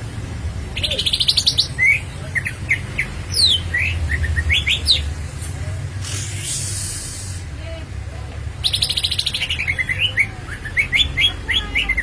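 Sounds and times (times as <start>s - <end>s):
bird singing: 0.7s - 5.1s, 8.6s - 12.0s.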